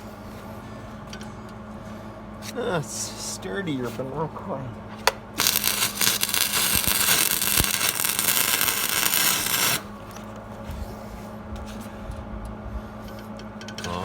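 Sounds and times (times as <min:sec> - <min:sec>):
welder arc crackling: 0:05.1 - 0:10.6.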